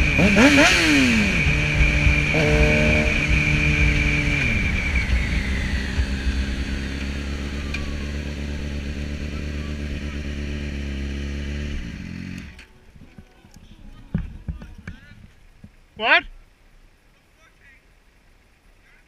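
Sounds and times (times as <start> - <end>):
motorcycle engine revving: 0.0 - 12.7
wind rush: 3.1 - 8.1.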